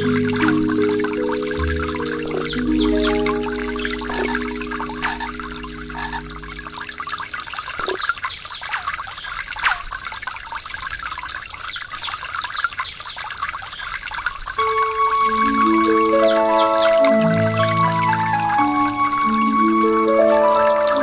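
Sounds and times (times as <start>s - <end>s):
held music chord: 0.0s - 7.6s, 14.6s - 21.0s
waterfall splashing: 0.0s - 8.0s
water drips and plops: 0.0s - 15.4s.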